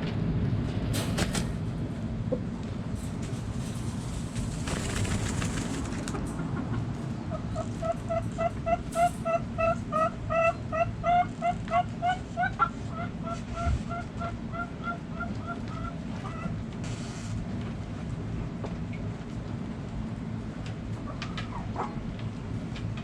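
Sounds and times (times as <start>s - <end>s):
steady low rumble: 0.0s - 8.1s.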